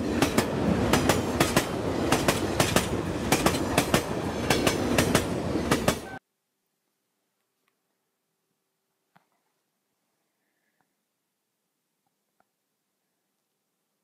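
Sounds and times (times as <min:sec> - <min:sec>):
train rumble with wheel clicks: 0:00.0 - 0:06.0.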